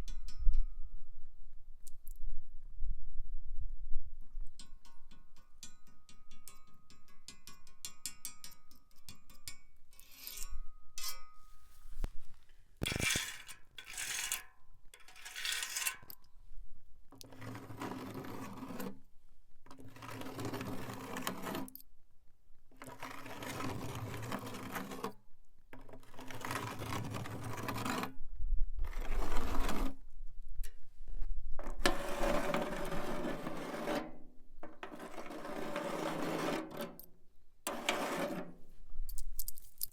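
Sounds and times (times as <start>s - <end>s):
nail scraping rusty bottle: 12.8s - 16.2s, 34.8s - 39.9s
nail scratching rusty can: 12.8s - 16.2s, 31.7s - 37.1s, 37.7s - 38.6s.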